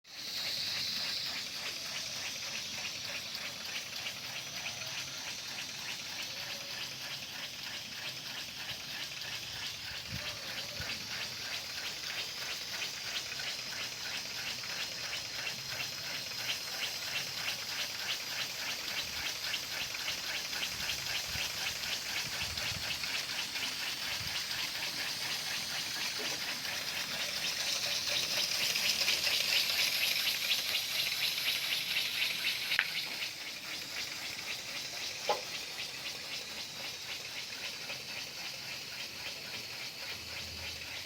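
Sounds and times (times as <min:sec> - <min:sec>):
steam engine chuffing: 0:00.1 - 0:41.0
steam hissing: 0:00.1 - 0:41.0.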